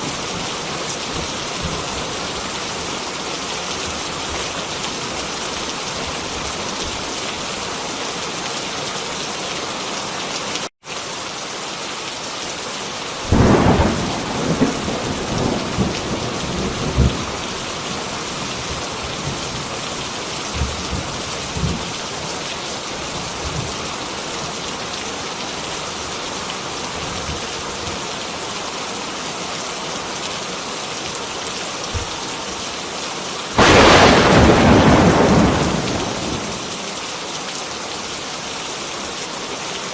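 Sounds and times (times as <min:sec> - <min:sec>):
heavy rain falling: 0:00.0 - 0:27.7, 0:33.5 - 0:38.3
thunder rumbling: 0:33.6 - 0:36.8.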